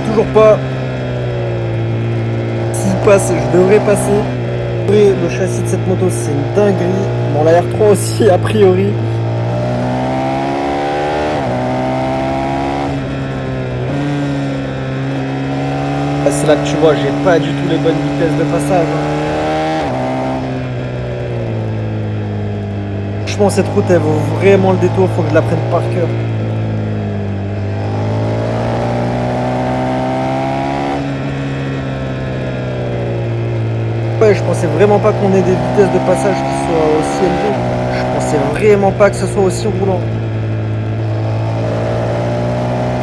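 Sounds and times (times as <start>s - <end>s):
motorcycle engine pulling: 0.0s - 43.0s.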